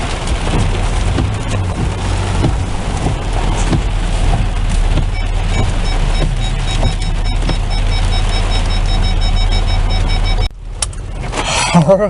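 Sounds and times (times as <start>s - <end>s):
car engine rumble: 0.0s - 12.0s
heavy rain on car roof: 0.0s - 12.0s.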